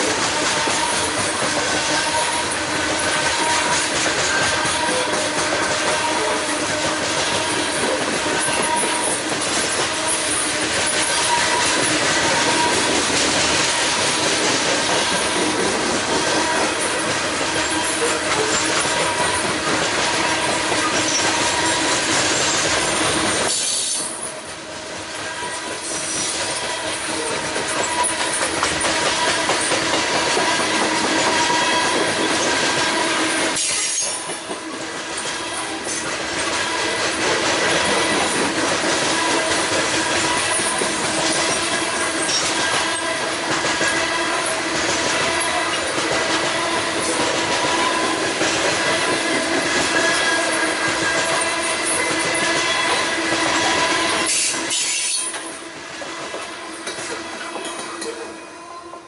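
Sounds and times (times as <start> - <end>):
train wheels rumbling on rails: 0.0 - 59.0
wheel squeals: 16.4 - 22.6
thin squeal of wheels: 20.8 - 22.5, 33.6 - 34.3, 54.3 - 55.4.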